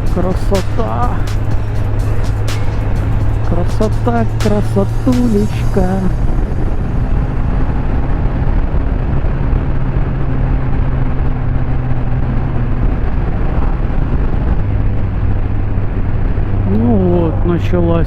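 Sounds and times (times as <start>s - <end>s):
motorcycle engine running: 0.0s - 18.0s
wind noise: 0.0s - 18.0s.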